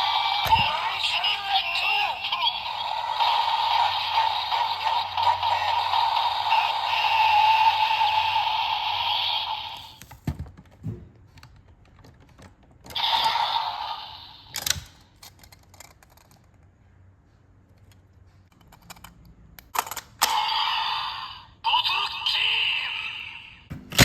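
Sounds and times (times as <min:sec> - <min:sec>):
toy speaker sound effect: 0:00.0 - 0:10.0, 0:12.9 - 0:14.5, 0:20.2 - 0:23.7.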